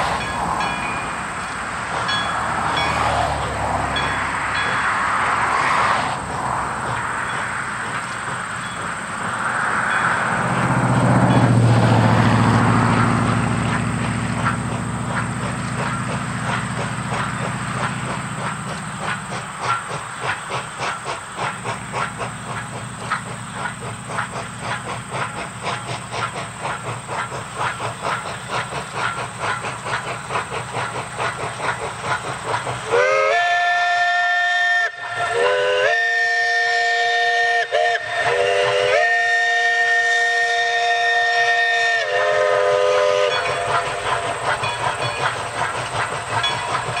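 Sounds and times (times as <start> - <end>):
train engine hum: 0.0 - 47.0
train wheels clicking over rail joints: 0.0 - 47.0
train chime whistle blasts: 32.9 - 45.3.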